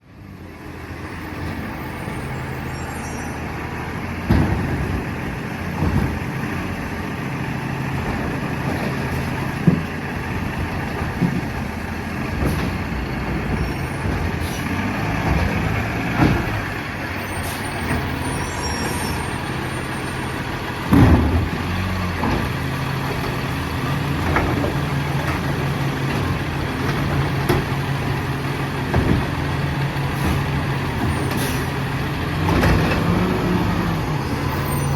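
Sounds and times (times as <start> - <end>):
garbage truck engine running: 0.4 - 34.9
sharp bangs and clunks: 4.2 - 6.5, 7.9 - 11.6, 12.2 - 16.8, 20.8 - 23.4, 28.8 - 33.3.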